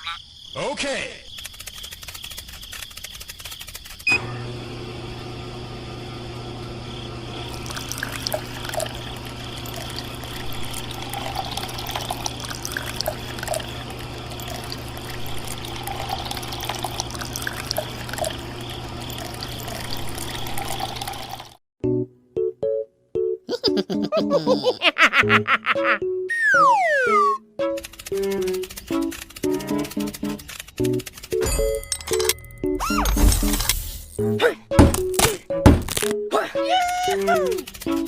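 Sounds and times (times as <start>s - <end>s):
low motor hum: 4.1s - 21.6s
water running and splashing: 7.5s - 21.6s.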